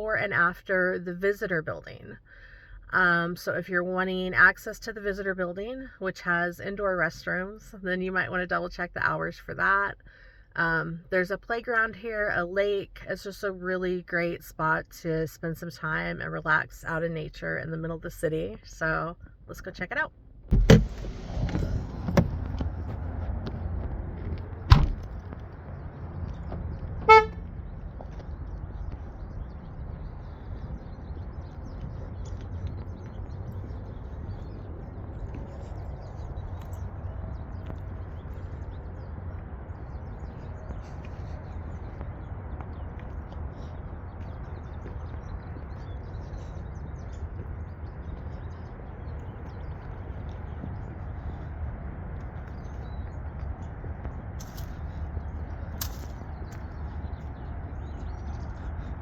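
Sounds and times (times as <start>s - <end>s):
steady low rumble: 0.0s - 59.0s
car door shutting: 20.5s - 22.7s, 24.7s - 25.1s
small birds chirping: 25.1s - 59.0s
car horn chirp: 27.0s - 27.5s.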